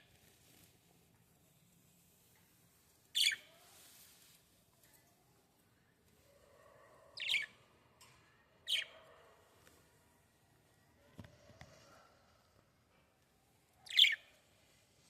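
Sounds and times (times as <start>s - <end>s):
small bird chirping: 3.1s - 3.8s, 7.2s - 7.6s, 13.8s - 14.4s.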